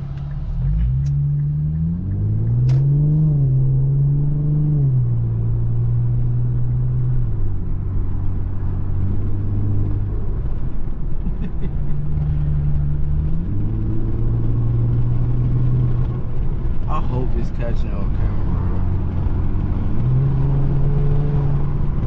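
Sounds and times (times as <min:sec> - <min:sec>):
car engine accelerating: 0:00.0 - 0:22.0
sharp click: 0:02.6 - 0:02.9.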